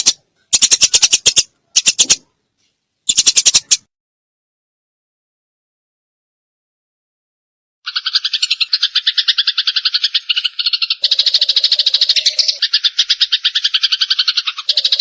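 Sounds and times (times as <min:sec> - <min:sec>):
bird chatter: 0:00.0 - 0:02.3, 0:03.1 - 0:03.9, 0:07.9 - 0:15.0
sparrow harsh chirps: 0:00.0 - 0:02.3, 0:03.1 - 0:03.9, 0:07.9 - 0:15.0.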